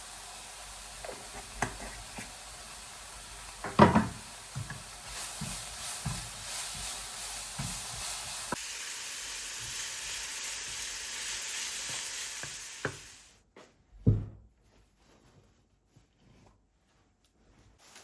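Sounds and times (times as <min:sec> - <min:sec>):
food sizzling in frying pan: 0:00.0 - 0:13.4.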